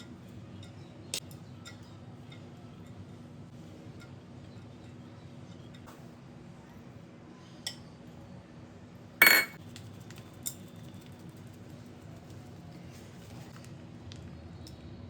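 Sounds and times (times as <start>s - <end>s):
metal utensil clinking on cookware: 9.2s - 9.6s.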